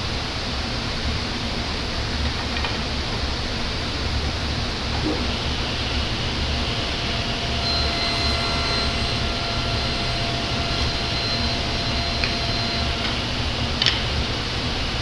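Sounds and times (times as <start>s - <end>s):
table saw whining: 5.0s - 15.0s.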